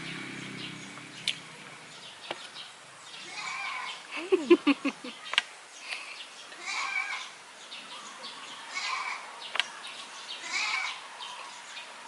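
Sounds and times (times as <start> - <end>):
goat bleating hoarsely: 3.3 - 4.0, 6.6 - 7.2, 10.4 - 11.0.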